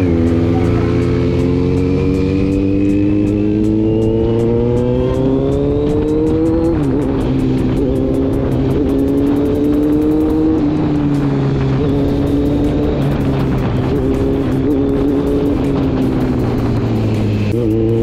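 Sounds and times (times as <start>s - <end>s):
motorcycle engine accelerating: 0.0s - 18.0s
wind noise on microphone: 0.0s - 18.0s.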